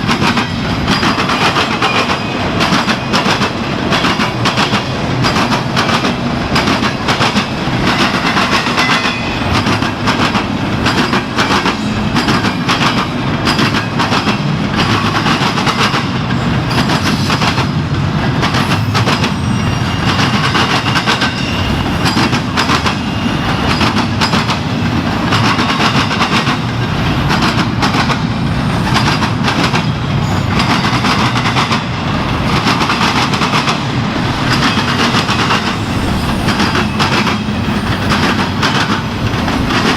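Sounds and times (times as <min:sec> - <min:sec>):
train rumble: 0:00.0 - 0:39.9
train wheels clicking over rail joints: 0:00.0 - 0:39.9.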